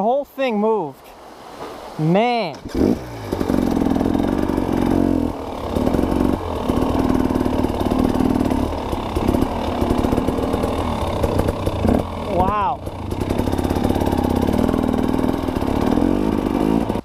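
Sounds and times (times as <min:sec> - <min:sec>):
dirt bike engine revving: 0:02.5 - 0:17.0.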